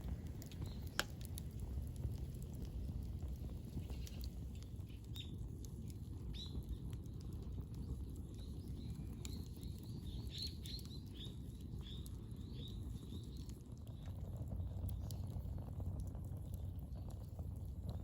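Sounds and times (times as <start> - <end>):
steady low rumble: 0.0 - 18.0
small bird chirping: 8.3 - 13.4.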